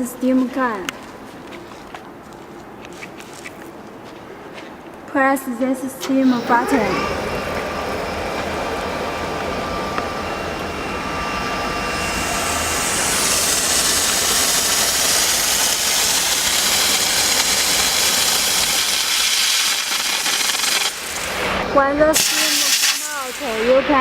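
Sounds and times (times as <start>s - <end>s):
machine low hum: 5.9s - 24.0s
steam hissing: 6.1s - 24.0s.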